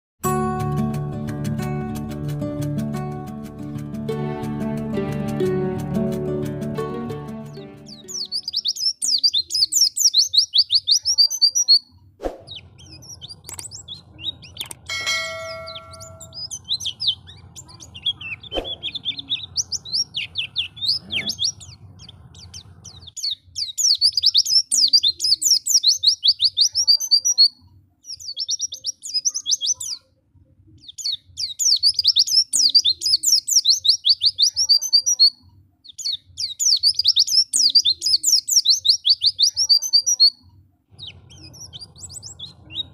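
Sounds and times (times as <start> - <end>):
bird twittering: 7.9 - 27.5.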